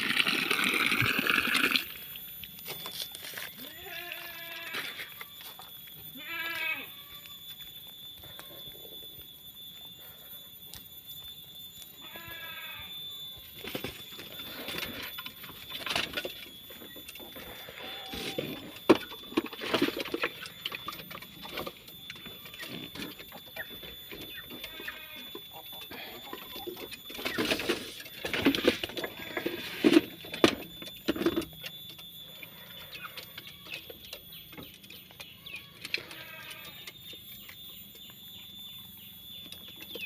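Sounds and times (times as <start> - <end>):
goat bleating: 3.6 - 5.0, 6.2 - 7.2, 24.6 - 25.3, 35.7 - 36.8.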